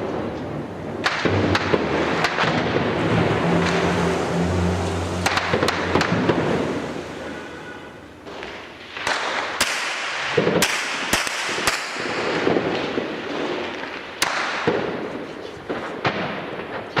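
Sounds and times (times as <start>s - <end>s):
echoing gunshots: 0.0s - 4.4s, 5.2s - 17.0s
background rumble: 0.0s - 9.6s.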